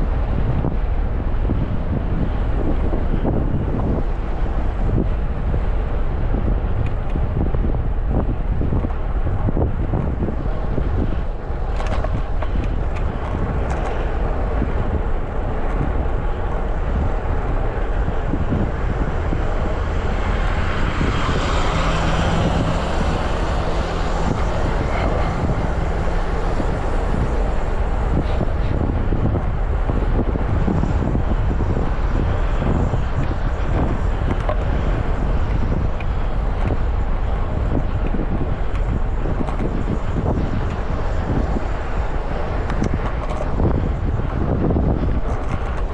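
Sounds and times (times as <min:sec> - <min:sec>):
wind rumbling on microphone: 0:00.0 - 0:45.9
vehicle passing: 0:12.8 - 0:30.5.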